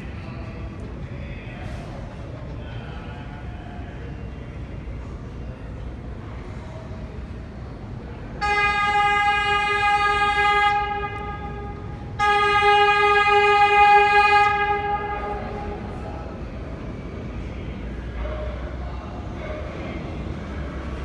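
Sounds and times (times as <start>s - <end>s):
station rumble: 0.0s - 21.0s
subway train horn blasts: 8.3s - 16.4s.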